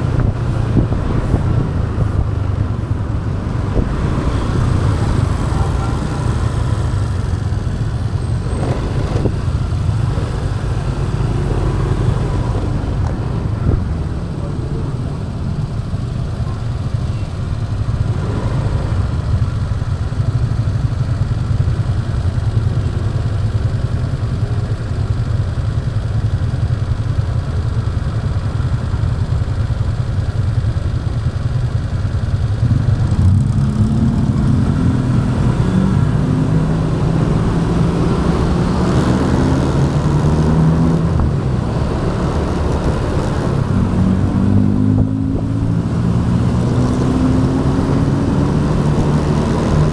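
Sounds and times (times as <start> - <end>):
engine accelerating: 0.0 - 17.2, 32.4 - 49.9
motorbike engine rumbling: 0.0 - 49.9.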